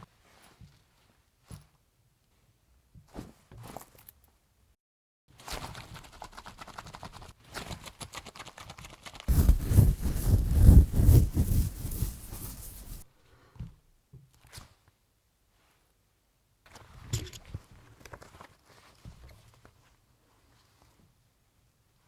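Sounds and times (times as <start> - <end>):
scratching on microphone: 9.3 - 13.0.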